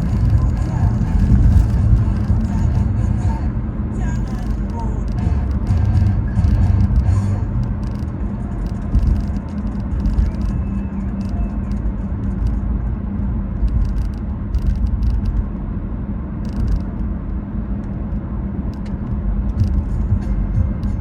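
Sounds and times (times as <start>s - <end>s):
short crackles: 0.0s - 3.0s, 4.0s - 12.8s
car rumbling with hum: 0.0s - 21.0s.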